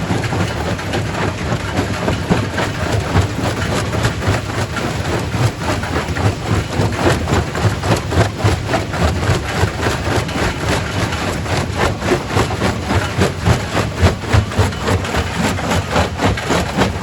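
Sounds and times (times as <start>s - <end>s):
rock crusher humming: 0.0s - 17.0s.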